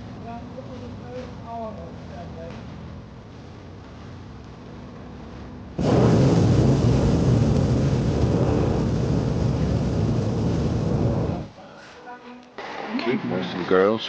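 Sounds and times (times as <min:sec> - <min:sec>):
propane burner roaring: 0:05.2 - 0:11.6.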